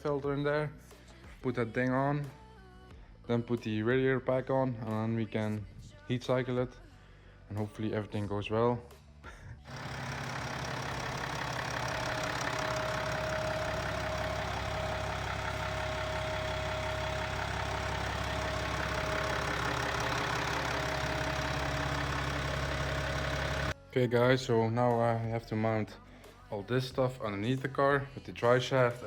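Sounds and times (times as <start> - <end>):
diesel engine idling: 9.7 - 23.8.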